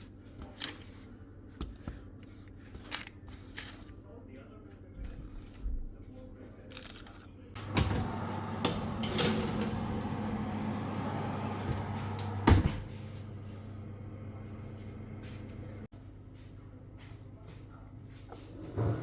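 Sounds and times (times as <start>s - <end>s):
motor hum and rushing: 7.6s - 15.9s.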